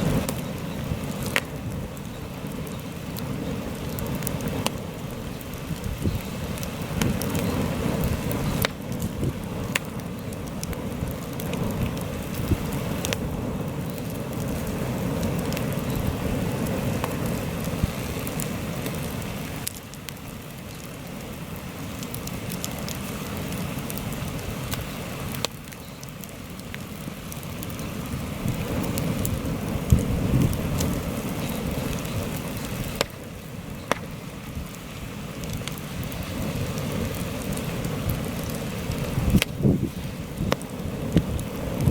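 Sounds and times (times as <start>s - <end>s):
wind buffeting microphone: 0.0s - 18.4s, 28.3s - 33.2s, 35.5s - 41.9s
campfire crackling and popping: 0.0s - 41.9s.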